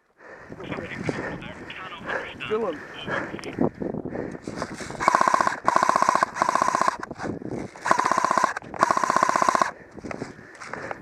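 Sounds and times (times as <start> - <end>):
airsoft gun firing full auto: 5.0 - 7.1, 7.8 - 9.7.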